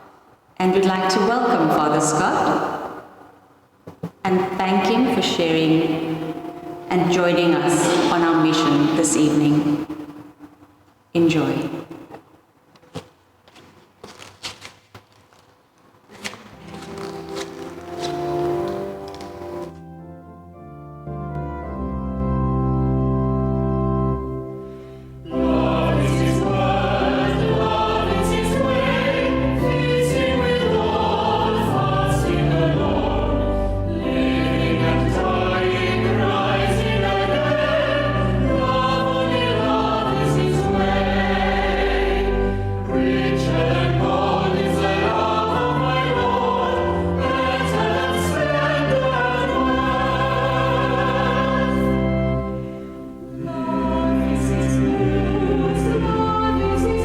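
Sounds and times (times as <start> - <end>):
choir singing: 4.4 - 10.1, 25.2 - 57.0
organ notes: 4.4 - 10.1, 16.2 - 57.0.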